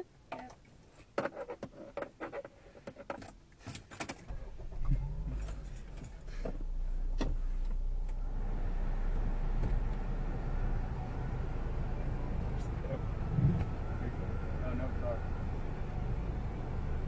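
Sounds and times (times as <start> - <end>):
car engine starting and idling: 3.9 - 17.0.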